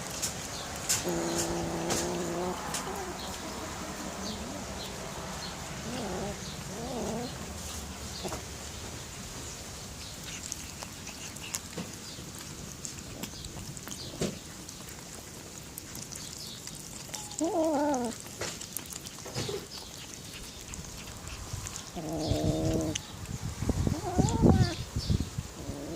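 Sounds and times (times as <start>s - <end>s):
cats growling and yowling: 0.9s - 8.5s, 9.9s - 24.9s, 25.6s - 25.9s.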